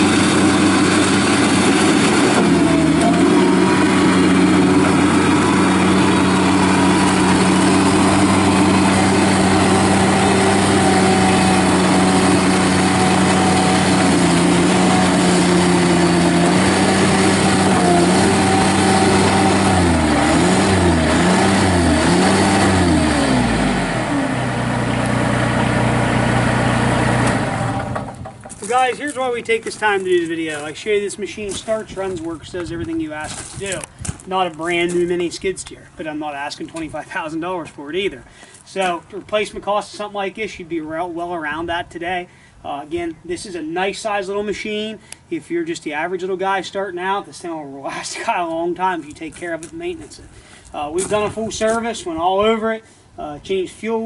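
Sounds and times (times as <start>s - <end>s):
loader diesel engine revving: 0.0s - 31.9s.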